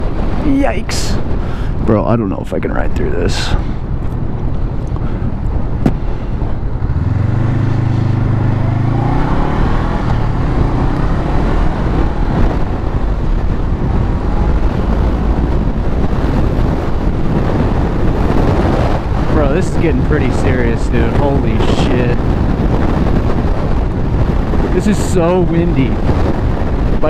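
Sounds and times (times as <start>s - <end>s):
wind noise on microphone: 0.0s - 27.0s
motorcycle engine pulling away: 6.8s - 13.5s.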